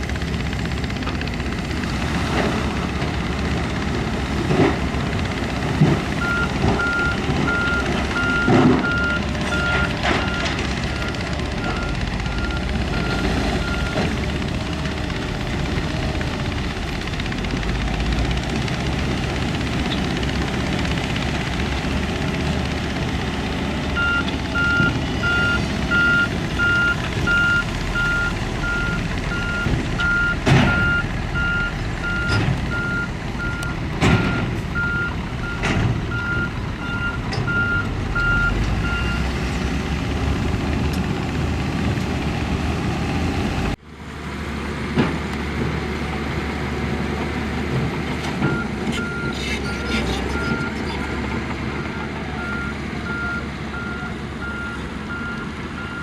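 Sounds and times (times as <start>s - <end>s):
diesel engine running: 0.0s - 56.0s
reversing alarm beeping: 6.2s - 14.0s, 24.0s - 39.2s.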